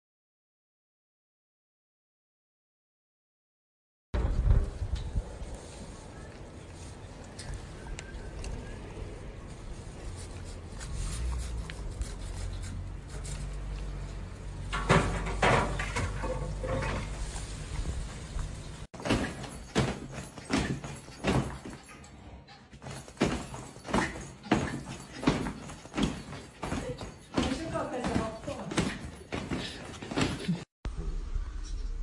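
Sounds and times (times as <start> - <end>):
low rumble: 30.9 - 32.0.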